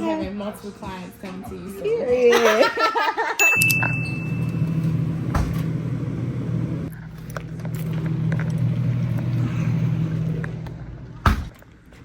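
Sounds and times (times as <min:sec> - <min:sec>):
low mechanical hum: 0:03.6 - 0:12.0.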